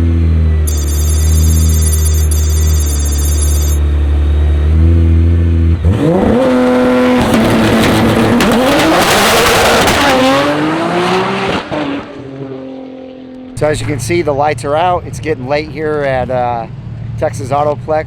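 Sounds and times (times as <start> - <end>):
drag car engine accelerating: 4.0 - 12.6.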